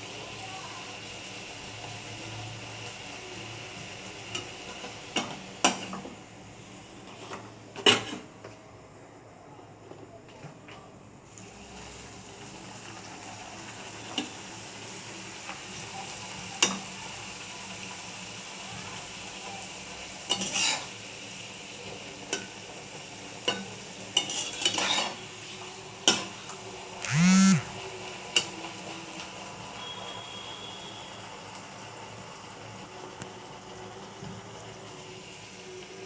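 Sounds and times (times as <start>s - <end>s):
food sizzling in hot oil: 0.0s - 7.3s, 11.2s - 26.9s, 27.9s - 36.0s
metal spatula scraping a pan: 20.4s - 20.9s, 24.2s - 25.2s.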